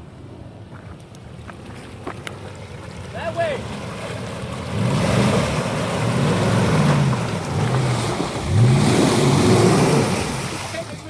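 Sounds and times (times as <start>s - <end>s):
off-road vehicle engine revving: 2.9s - 11.0s.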